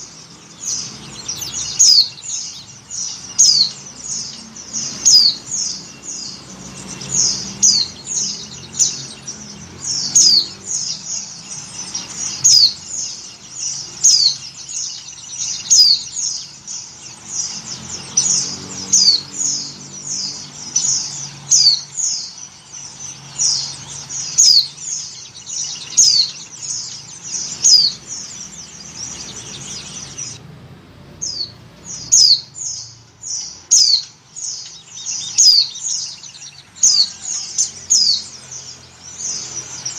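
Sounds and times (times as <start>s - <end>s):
small bird chirping: 0.0s - 39.9s.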